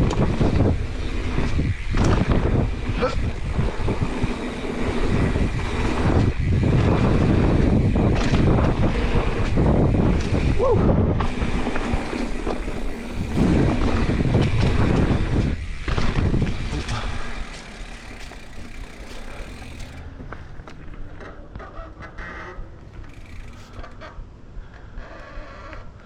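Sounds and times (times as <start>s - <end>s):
wind buffeting microphone: 0.0s - 20.3s
bike tyres rolling on dirt: 0.0s - 26.0s.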